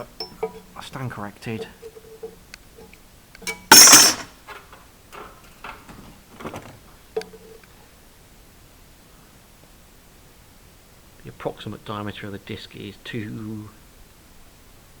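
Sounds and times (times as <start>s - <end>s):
metal clinks and knocks: 0.0s - 0.8s, 1.4s - 7.6s
bench grinder rasping burst: 3.7s - 4.3s.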